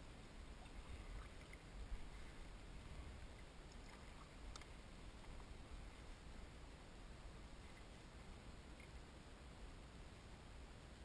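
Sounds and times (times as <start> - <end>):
faint low rumble: 0.0 - 11.0
faint click: 3.6 - 5.5.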